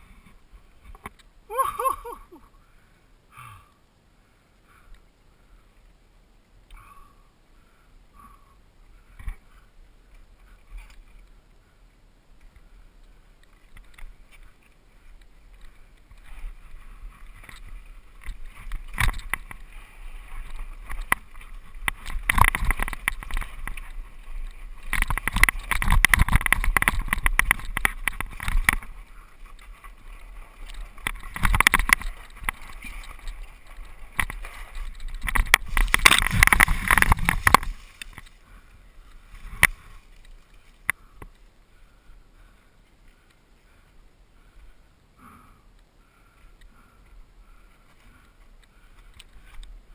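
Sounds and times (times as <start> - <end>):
bike tyres on dirt trail: 0.0 - 49.9
bike clattering and rattling: 13.4 - 38.5.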